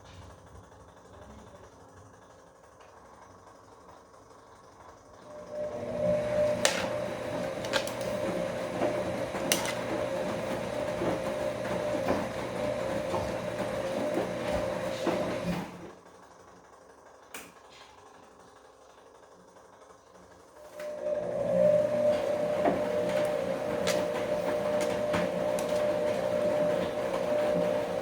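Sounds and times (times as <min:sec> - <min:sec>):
washing machine motor whine: 0:00.0 - 0:28.0
wet laundry tumbling with clicks: 0:05.3 - 0:16.0, 0:20.6 - 0:28.0.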